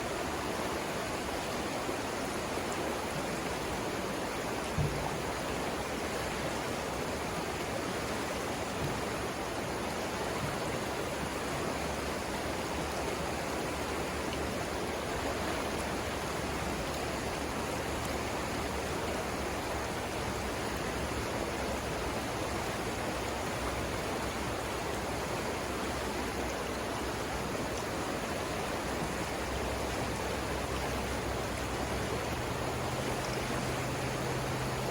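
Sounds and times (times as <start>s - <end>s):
river rushing over rapids: 0.0s - 34.9s
low thump: 4.8s - 5.1s.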